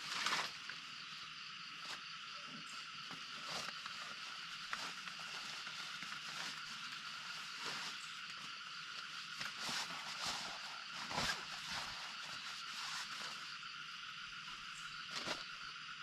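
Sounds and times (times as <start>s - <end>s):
handling knocks and scrapes: 9.3s - 13.4s.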